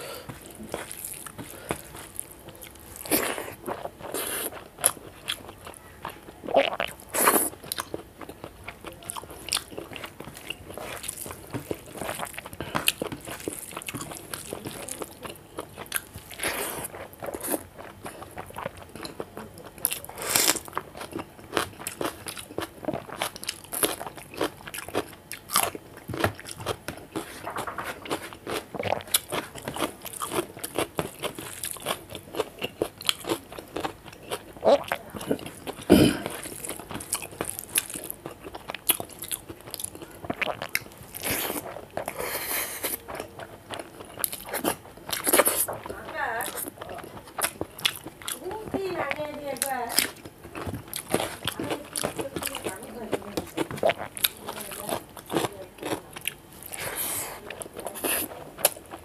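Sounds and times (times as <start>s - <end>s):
chewing and crunching: 0.0s - 59.0s.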